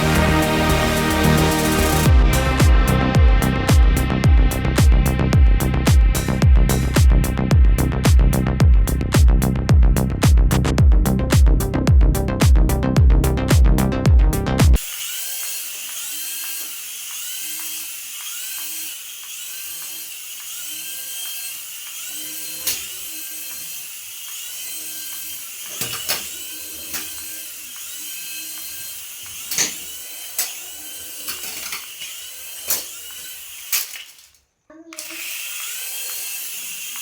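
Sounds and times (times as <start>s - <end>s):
small electric motor whirring: 14.8s - 34.2s, 34.9s - 37.0s.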